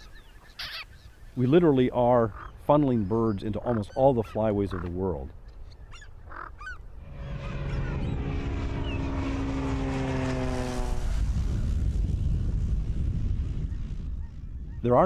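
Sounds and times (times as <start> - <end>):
propeller aircraft passing by: 6.4 - 14.8
low rumble: 6.9 - 15.0.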